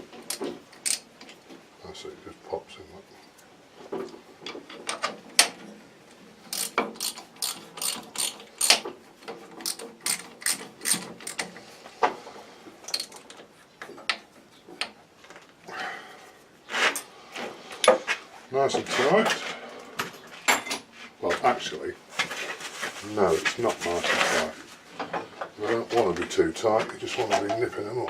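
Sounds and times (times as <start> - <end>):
metallic clicks of hand tools: 0.3 - 1.1, 6.5 - 8.8, 9.6 - 11.6.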